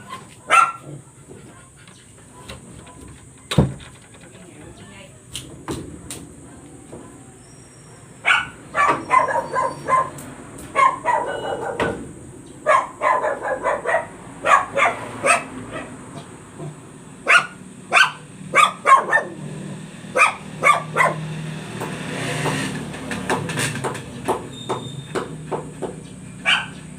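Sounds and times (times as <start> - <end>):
dog barking: 0.0 - 1.6, 8.2 - 12.0, 12.6 - 16.0, 17.2 - 19.5, 20.1 - 21.3, 26.4 - 26.9.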